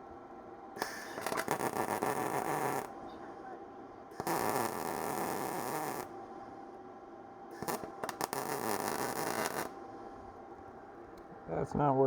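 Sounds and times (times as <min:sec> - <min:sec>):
welding arc crackling and popping: 0:00.8 - 0:02.9, 0:04.2 - 0:06.1, 0:07.6 - 0:09.7.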